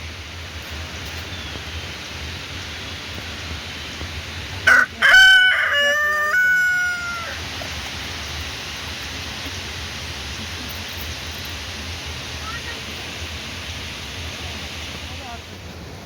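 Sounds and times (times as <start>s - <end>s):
rain hissing: 0.0s - 16.0s
rooster crowing: 4.7s - 7.4s.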